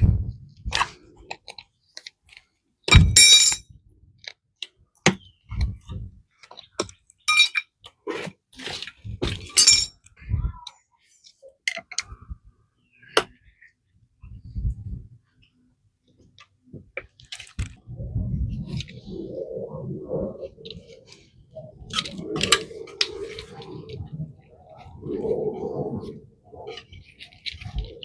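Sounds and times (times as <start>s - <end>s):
metal tools clinking and knocking: 3.1s - 3.6s, 7.2s - 7.7s, 9.5s - 10.0s.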